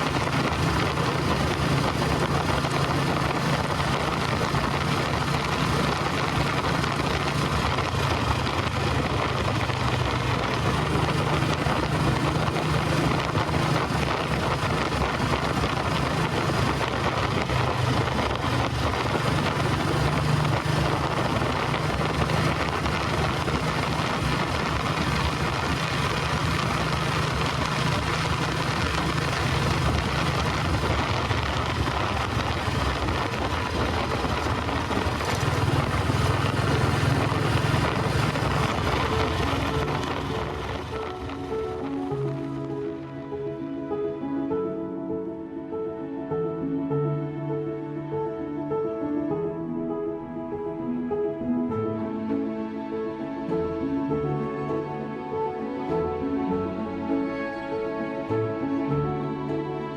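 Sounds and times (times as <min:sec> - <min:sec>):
wind rush on microphone: 0:00.0 - 0:43.0.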